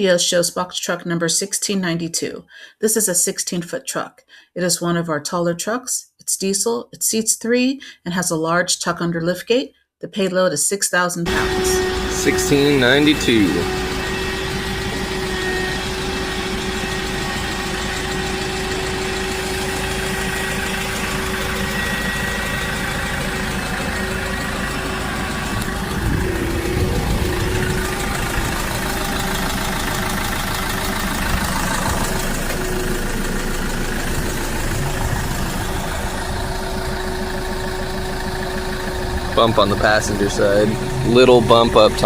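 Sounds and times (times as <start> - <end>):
diesel truck engine idling: 11.3 - 42.0.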